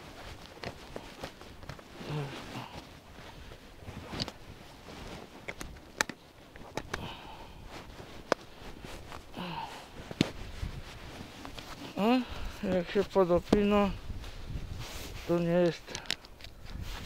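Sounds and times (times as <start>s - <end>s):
backpack and straps rustling: 0.0s - 17.0s
heavy breathing: 2.0s - 3.7s, 6.8s - 10.8s, 11.6s - 12.7s
buckles clicking: 5.3s - 7.0s, 15.6s - 16.8s.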